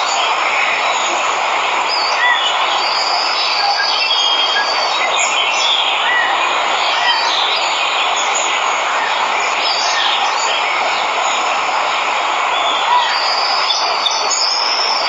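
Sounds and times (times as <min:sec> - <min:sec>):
waterfall rushing: 0:00.0 - 0:15.0
birds chirping and whistling: 0:01.9 - 0:10.6.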